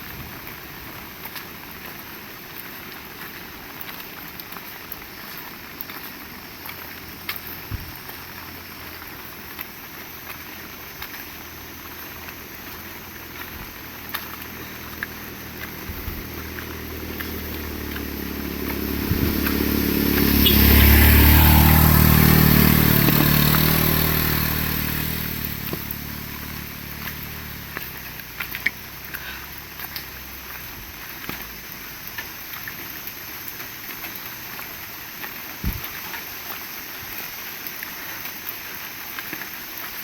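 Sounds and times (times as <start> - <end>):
steady rain: 0.0 - 40.0
water drips: 1.2 - 40.0
vehicle engine passing: 12.7 - 31.4.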